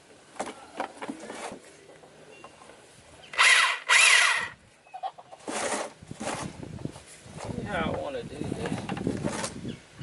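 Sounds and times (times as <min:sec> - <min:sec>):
power tool motor whine: 0:03.4 - 0:04.6.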